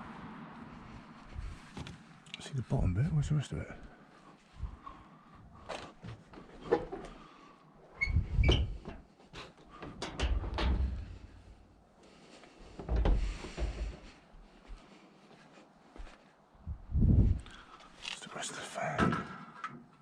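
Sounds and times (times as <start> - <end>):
heavy low thumps: 16.6 - 17.5.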